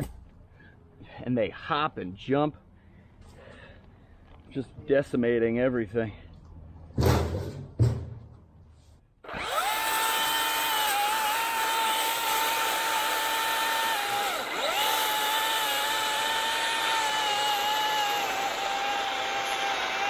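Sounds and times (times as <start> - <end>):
battery chainsaw whining: 9.2 - 20.0.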